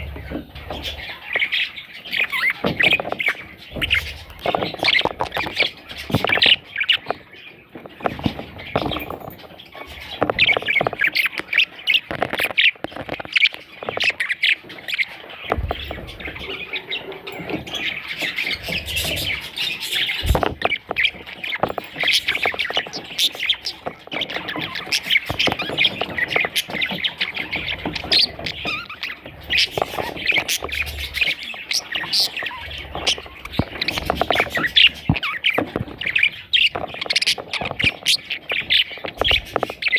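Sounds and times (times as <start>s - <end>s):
budgerigar chicks chirping: 0.0s - 39.9s
low bumps: 15.5s - 23.1s.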